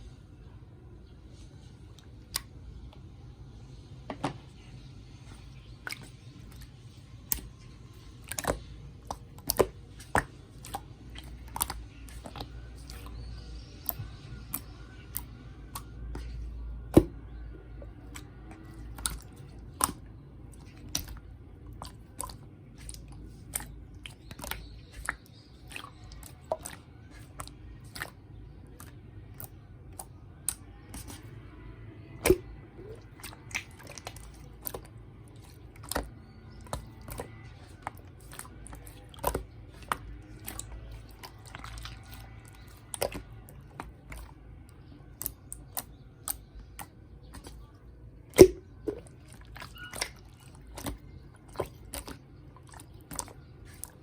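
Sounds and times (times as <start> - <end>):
slime squishing: 4.6 - 54.0
slime clicking and popping: 33.1 - 44.3, 48.3 - 53.9.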